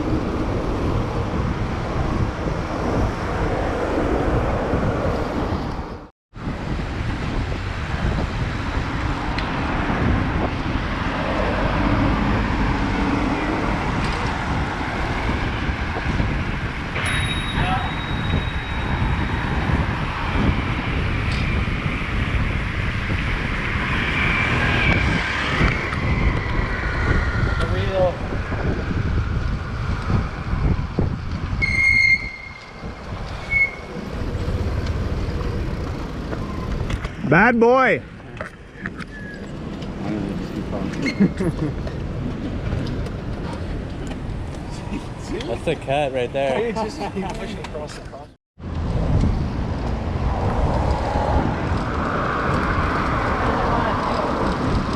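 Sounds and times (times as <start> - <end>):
road traffic noise: 0.0 - 54.9
wind rumbling on microphone: 0.0 - 54.9
vehicle engine hum: 19.6 - 37.2
high-pitched squeal: 31.6 - 34.6.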